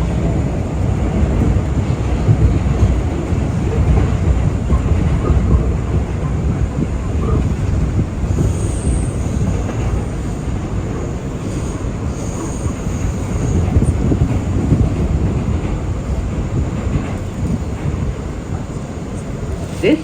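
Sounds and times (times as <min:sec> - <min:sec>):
subway train rumbling on rails: 0:00.0 - 0:20.0.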